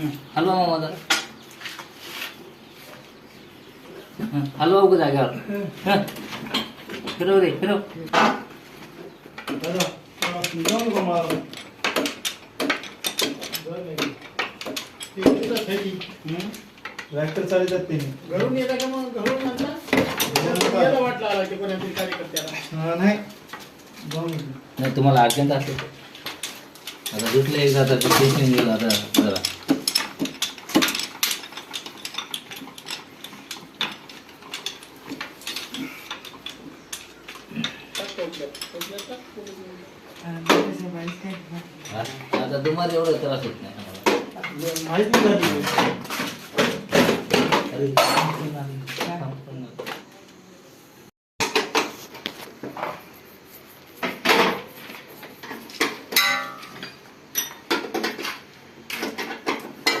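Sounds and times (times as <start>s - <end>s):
metal tools clinking: 9.4s - 22.8s, 23.5s - 40.3s, 41.0s - 45.6s, 55.4s - 60.0s
metal knocks: 55.8s - 58.2s.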